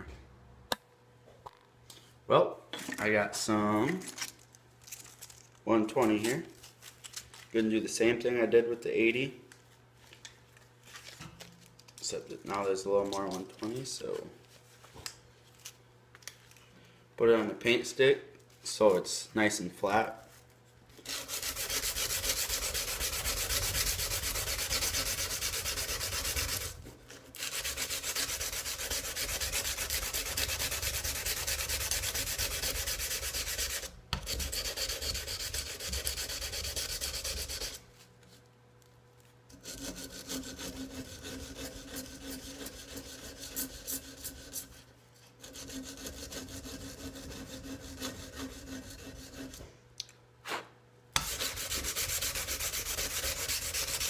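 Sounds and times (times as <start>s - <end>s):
sandpaper scraping on knife blade: 21.0s - 26.8s, 27.4s - 37.8s, 39.5s - 44.8s, 45.4s - 49.6s, 51.2s - 54.0s.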